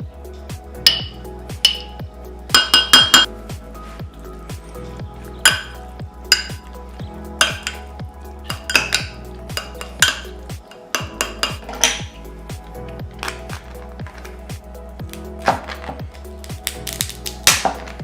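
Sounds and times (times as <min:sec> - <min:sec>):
background music with steady beat: 0:00.0 - 0:18.0
metal utensil clinking on dish: 0:02.6 - 0:03.3, 0:08.6 - 0:12.1.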